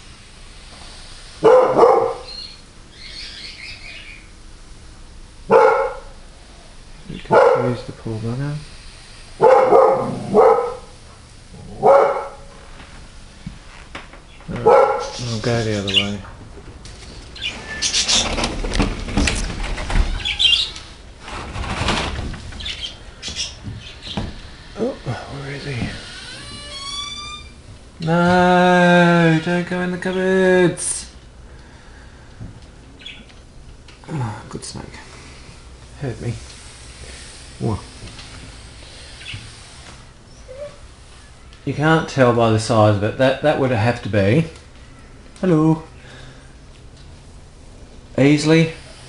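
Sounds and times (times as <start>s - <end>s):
dog barking: 1.4s - 2.3s, 5.5s - 6.2s, 7.3s - 7.8s, 9.4s - 10.9s, 11.8s - 12.5s, 14.6s - 15.2s
high bird-like chirp: 2.0s - 4.3s.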